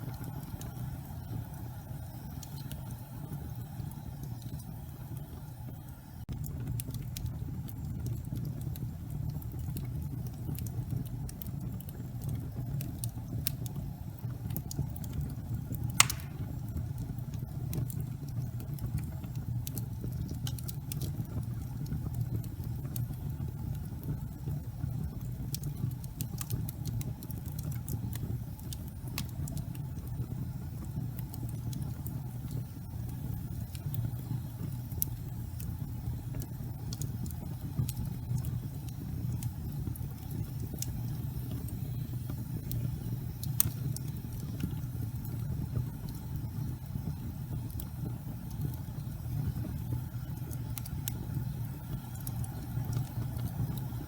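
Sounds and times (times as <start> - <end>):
fire crackles and pops: 0.0 - 54.0
flame rumbling: 0.0 - 54.0.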